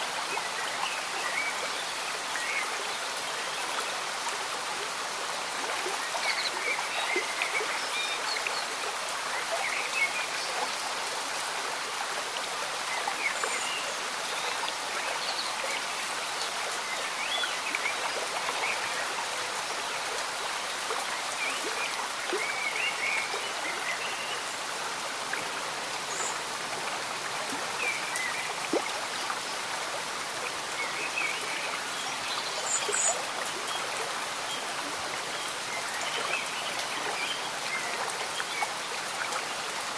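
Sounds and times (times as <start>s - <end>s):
steady rain: 0.0s - 39.9s
stream bubbling and trickling: 0.0s - 39.9s.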